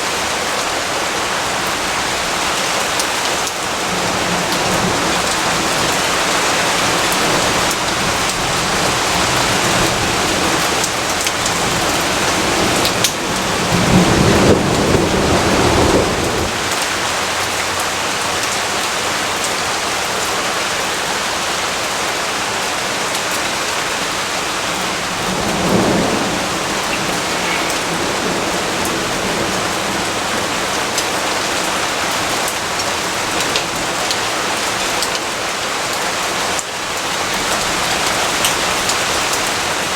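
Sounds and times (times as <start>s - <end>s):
rain falling: 0.0s - 39.9s
thunder rumbling: 3.7s - 17.6s, 23.9s - 32.6s.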